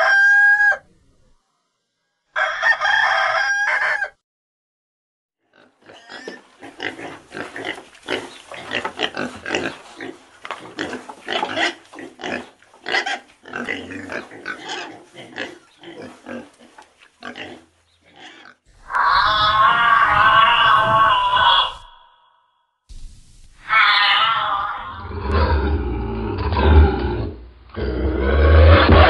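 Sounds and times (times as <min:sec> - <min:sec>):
wavering pitched animal call: 0:18.8 - 0:22.5, 0:23.6 - 0:25.6
boars grunting: 0:23.8 - 0:29.0.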